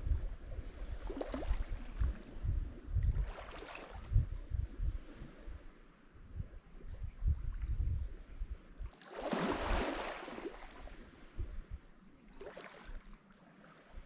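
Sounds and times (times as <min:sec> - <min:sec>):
wind rumble on microphone: 0:00.0 - 0:14.0
waves breaking on shore: 0:00.6 - 0:02.5, 0:03.1 - 0:04.2, 0:08.9 - 0:14.0.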